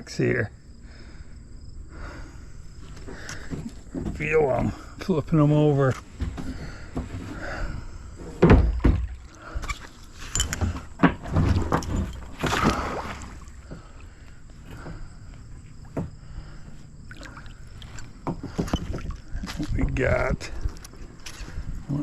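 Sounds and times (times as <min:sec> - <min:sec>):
hollow knocks against kayak hull: 0:08.4 - 0:09.2
water lapping: 0:12.2 - 0:19.7
water splash: 0:12.4 - 0:13.6.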